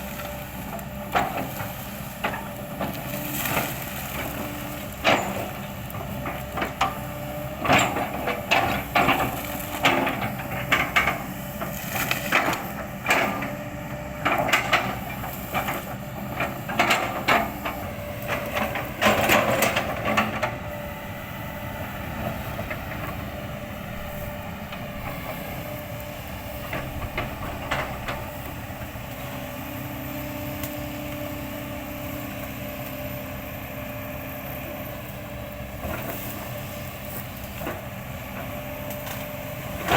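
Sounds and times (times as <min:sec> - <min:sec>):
diesel engine running: 0:00.0 - 0:39.9
excavator bucket crushing wood: 0:00.8 - 0:20.8.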